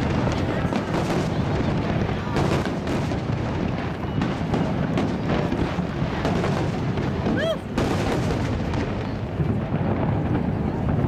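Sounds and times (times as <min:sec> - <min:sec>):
fireworks bangs and crackles: 0:00.0 - 0:11.0
firework whistle: 0:03.9 - 0:05.6, 0:07.2 - 0:08.3.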